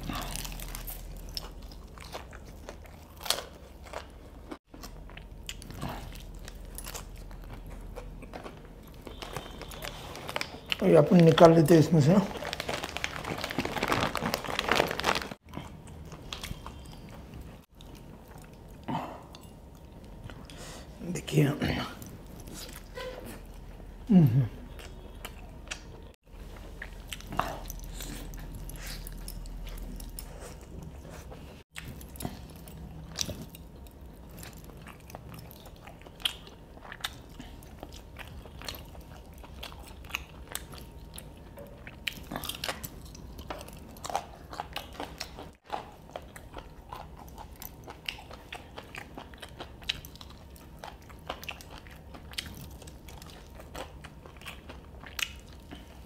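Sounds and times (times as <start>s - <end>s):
biting and chewing crispy chicken: 0.0s - 17.0s, 31.1s - 56.0s.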